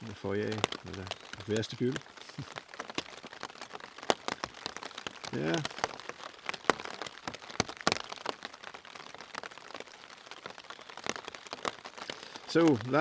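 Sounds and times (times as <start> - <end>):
rain hissing on a tent: 0.0 - 13.0
raindrops tapping on fabric: 0.0 - 13.0.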